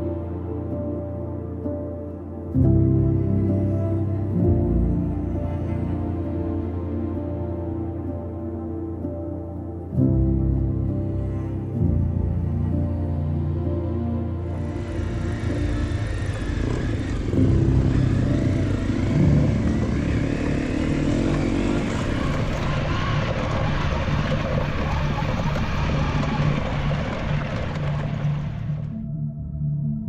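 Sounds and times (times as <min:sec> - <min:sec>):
motorcycle engine revving: 0:14.6 - 0:28.9.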